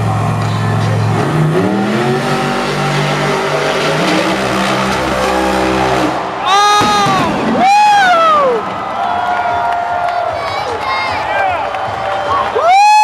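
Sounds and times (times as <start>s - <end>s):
monster truck engines revving: 0.0s - 9.2s.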